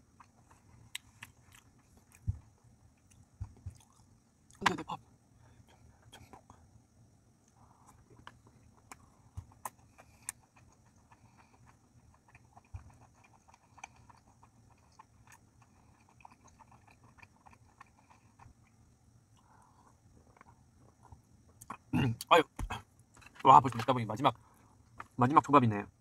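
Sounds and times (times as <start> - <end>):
closed-mouth chewing: 7.5 - 18.8.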